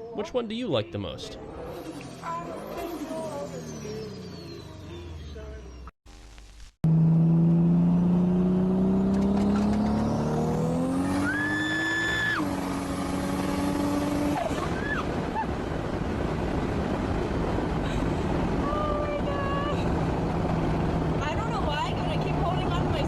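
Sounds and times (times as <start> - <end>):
high squeal: 1.6 - 5.9
car engine accelerating hard: 6.9 - 23.0.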